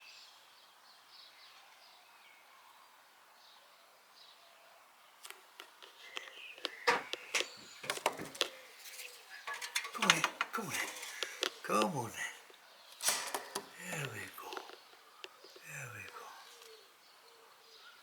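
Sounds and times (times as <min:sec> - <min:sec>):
sharp knocks and clatters: 0:06.7 - 0:08.6, 0:09.5 - 0:11.6, 0:13.0 - 0:13.8.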